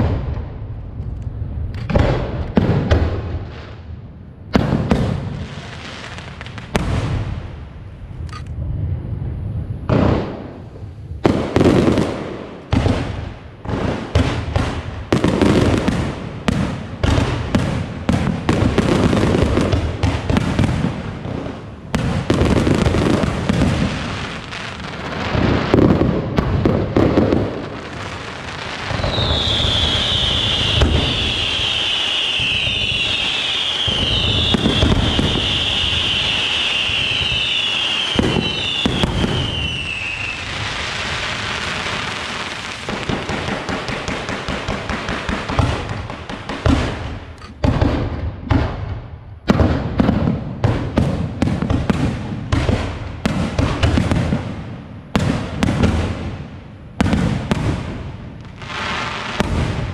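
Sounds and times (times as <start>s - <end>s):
fireworks crackling: 0.0s - 59.9s
falling firework whistles: 27.7s - 43.2s.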